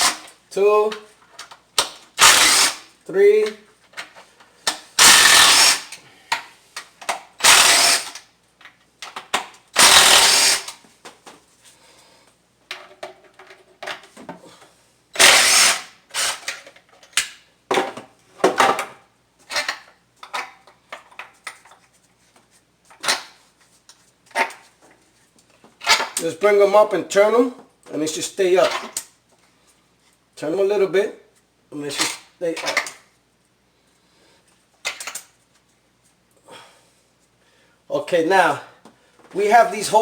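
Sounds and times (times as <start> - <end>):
socket tool bursts: 2.2 - 2.8, 5.0 - 6.0, 7.4 - 8.2, 9.8 - 10.8, 15.2 - 16.5.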